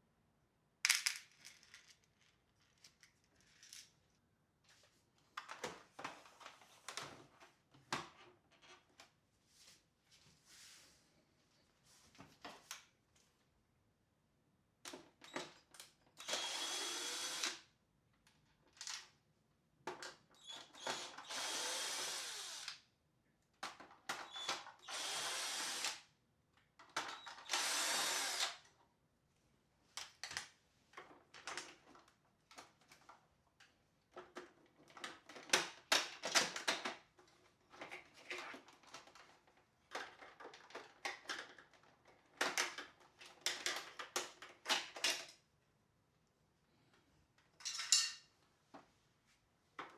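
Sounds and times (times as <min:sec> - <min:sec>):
plastic parts clicking and rattling: 0:00.9 - 0:04.0, 0:34.1 - 0:45.4
electric screwdriver whining: 0:16.2 - 0:17.6, 0:20.8 - 0:22.8, 0:24.8 - 0:26.0, 0:27.4 - 0:28.6.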